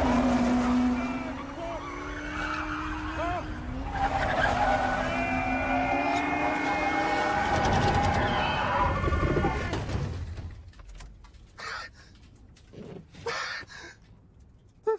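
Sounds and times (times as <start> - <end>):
race car engine and tyres: 0.0 - 10.6.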